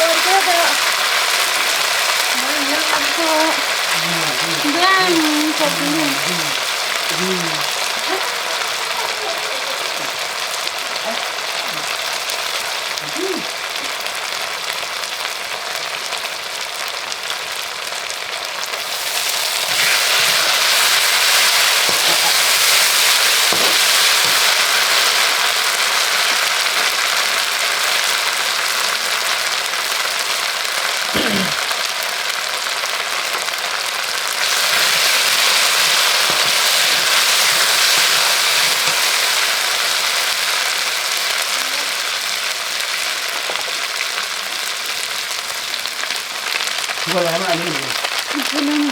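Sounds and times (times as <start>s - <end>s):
food sizzling in hot oil: 0.0s - 48.9s.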